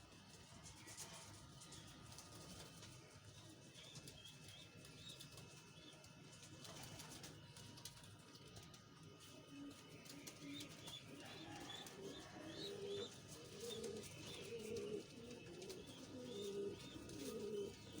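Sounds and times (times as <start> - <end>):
pigeons cooing: 9.2 - 18.0.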